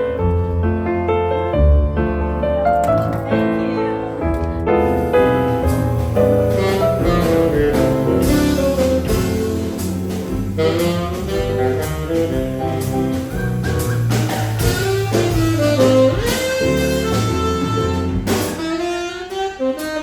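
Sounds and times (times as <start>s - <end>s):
bass line: 0.0s - 19.0s
piano: 0.0s - 20.0s
saxophone: 6.2s - 13.9s, 14.6s - 20.0s.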